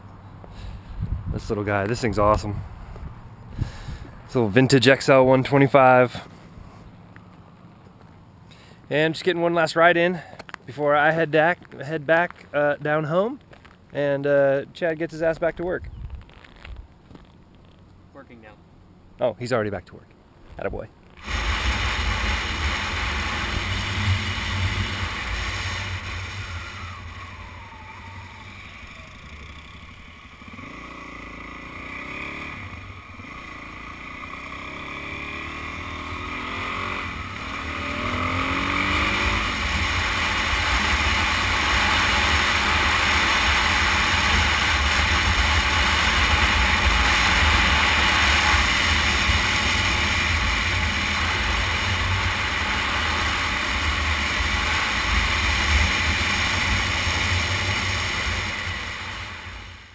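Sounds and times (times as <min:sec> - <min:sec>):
wind rush on microphone: 0:00.6 - 0:04.2, 0:15.8 - 0:16.9
motorcycle engine revving: 0:21.1 - 0:59.9.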